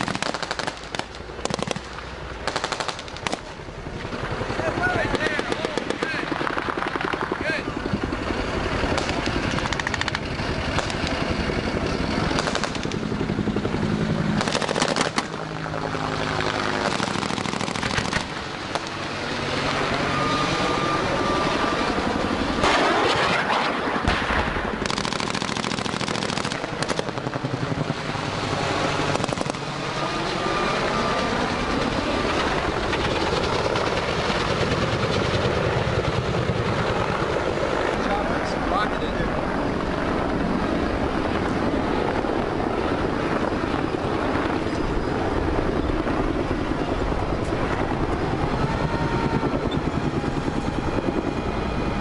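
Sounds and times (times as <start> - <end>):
automatic gunfire: 0.0 - 3.5, 12.3 - 13.0, 14.4 - 15.4, 16.8 - 18.3, 24.1 - 27.2
military vehicle engines running: 0.0 - 52.0.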